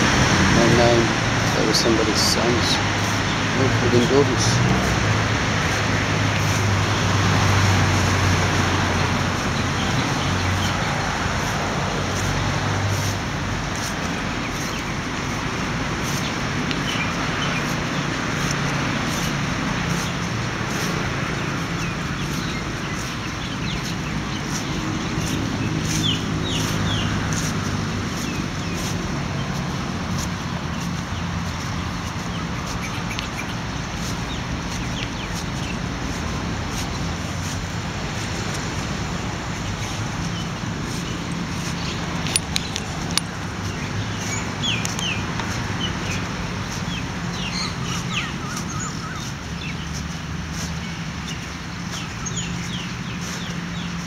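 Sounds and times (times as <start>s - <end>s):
birds chirping: 0.0s - 54.0s
sharp clicks: 42.1s - 43.4s.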